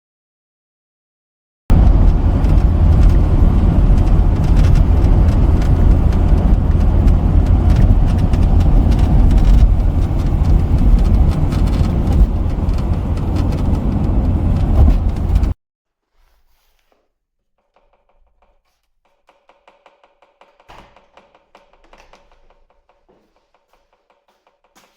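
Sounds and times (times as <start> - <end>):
heavy low rumble: 1.7 - 15.6
wind and road noise: 1.7 - 15.6.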